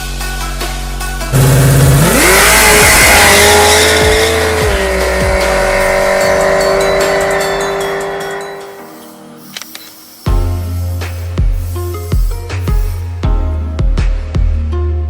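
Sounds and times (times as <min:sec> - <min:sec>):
background music: 0:00.0 - 0:15.0
car engine at high revs: 0:01.3 - 0:08.9.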